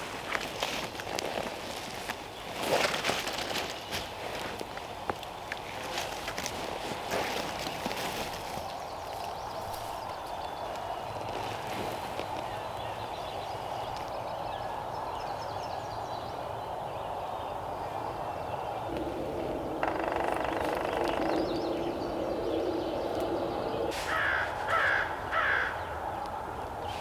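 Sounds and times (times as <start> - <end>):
songbird chirps: 8.5 - 24.6
low drone: 18.6 - 25.4
crow cawing: 18.9 - 26.0.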